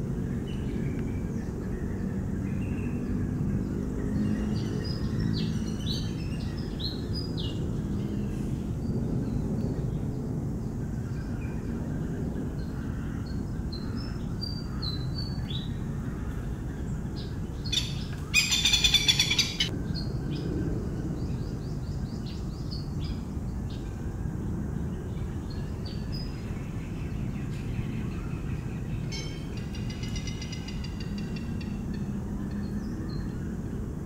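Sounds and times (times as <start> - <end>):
birds chirping: 0.3 - 33.9
loud harsh bird call: 17.7 - 19.7.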